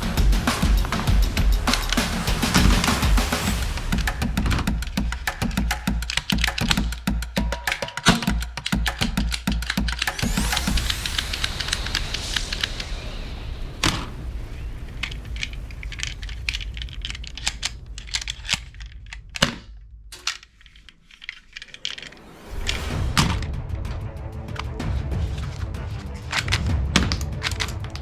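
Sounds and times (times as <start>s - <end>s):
toy guns clicking and cracking: 4.4s - 12.7s, 14.9s - 22.2s, 26.2s - 28.0s.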